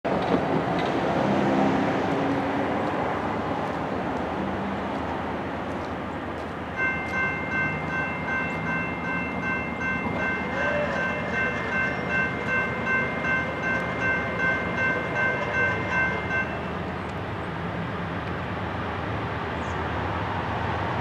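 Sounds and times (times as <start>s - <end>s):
distant freight train approaching: 0.1s - 21.0s
high warning tone: 6.8s - 16.8s.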